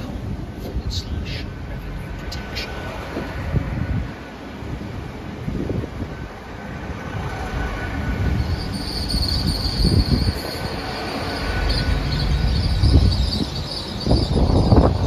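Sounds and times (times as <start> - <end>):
train rumbling: 0.0 - 15.0
high-pitched squeal: 7.2 - 15.0.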